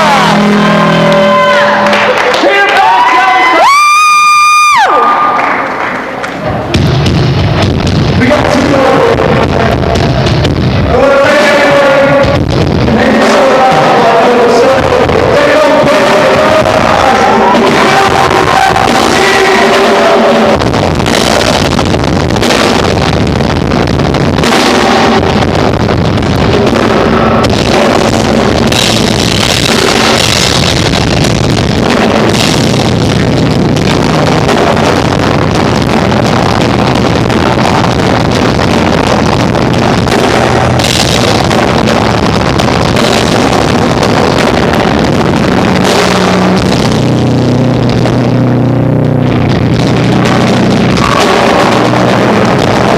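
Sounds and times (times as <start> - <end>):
bass guitar: 0.0 - 2.5, 3.5 - 52.9
drum kit: 0.0 - 52.9
electric guitar: 0.0 - 52.9.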